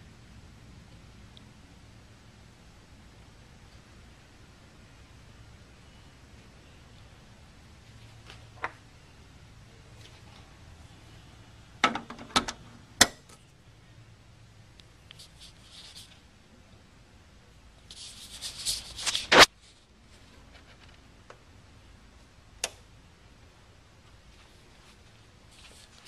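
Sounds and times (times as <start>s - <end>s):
rustling and scraping: 15.1s - 16.2s, 17.8s - 21.1s, 24.3s - 26.0s.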